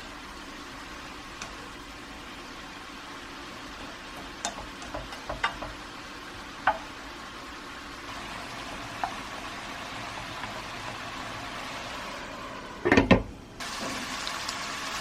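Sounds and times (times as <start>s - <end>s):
food sizzling: 0.0s - 12.9s, 13.5s - 15.0s
utensil clinking against cookware: 4.4s - 5.8s.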